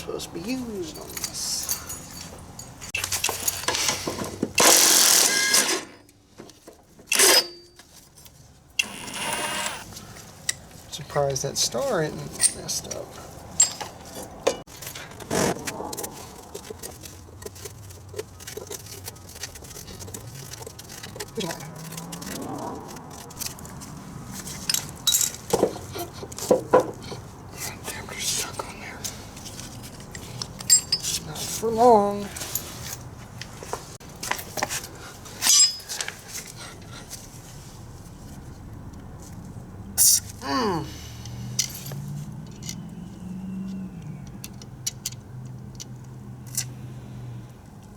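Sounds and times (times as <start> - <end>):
metal tools clanking: 0.1 - 6.2, 7.1 - 7.9, 11.6 - 15.3, 24.3 - 27.4, 28.4 - 33.1, 34.8 - 36.9
ringing metallic clink: 30.6 - 31.0, 35.4 - 36.0.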